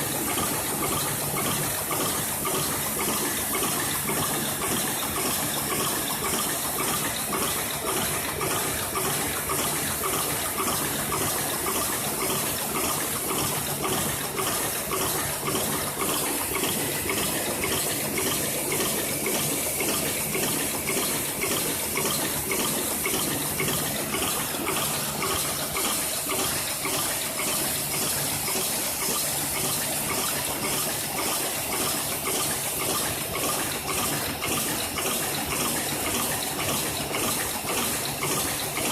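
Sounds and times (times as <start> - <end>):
fast mechanical ticking: 0.0 - 38.9
production machine running: 0.0 - 38.9.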